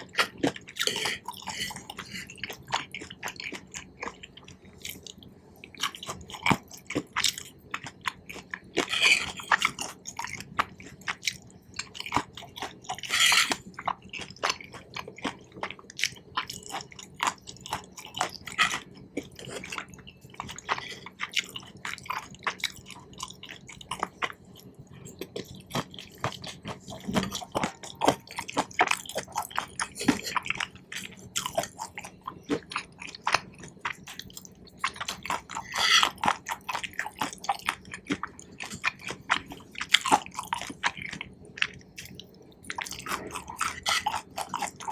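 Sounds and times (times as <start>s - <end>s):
close chewing with mouth smacks: 0.0s - 44.9s.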